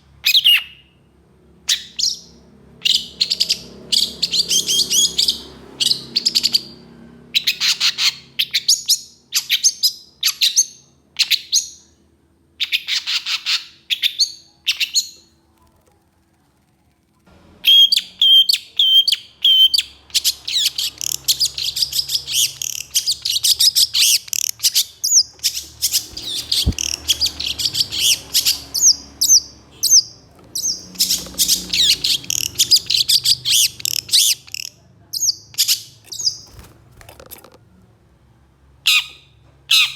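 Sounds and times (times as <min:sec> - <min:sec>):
bird whistles: 0:17.6 - 0:34.4.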